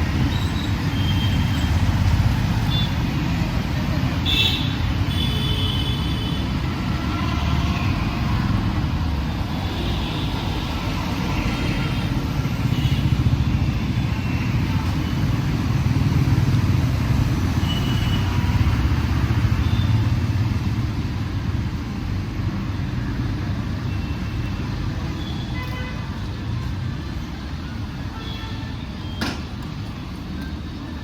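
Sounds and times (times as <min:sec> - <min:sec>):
city road traffic rumble: 0:00.0 - 0:31.0.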